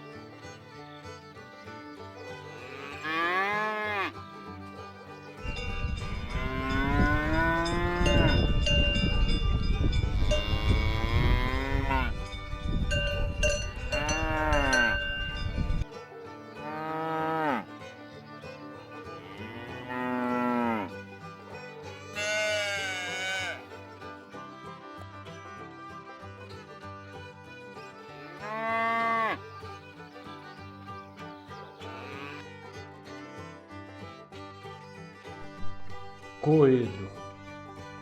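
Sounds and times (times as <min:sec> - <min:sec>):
cows mooing: 0:02.5 - 0:04.2, 0:05.4 - 0:08.8, 0:10.0 - 0:12.3, 0:12.9 - 0:15.4, 0:16.6 - 0:17.7, 0:19.1 - 0:20.9, 0:22.0 - 0:23.6, 0:28.3 - 0:29.4, 0:31.8 - 0:32.4.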